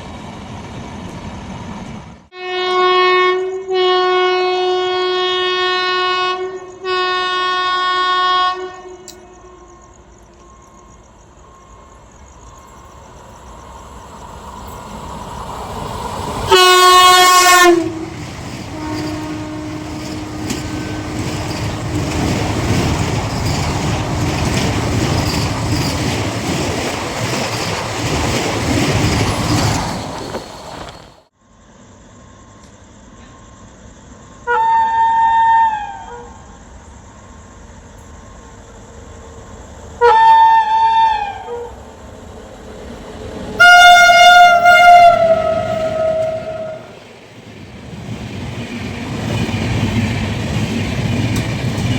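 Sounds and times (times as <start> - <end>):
train horn blasts: 2.3 - 10.2, 16.5 - 22.9, 34.4 - 36.4, 40.0 - 41.8, 43.6 - 47.0
train wheels clattering on rails: 10.1 - 31.3, 42.0 - 51.9.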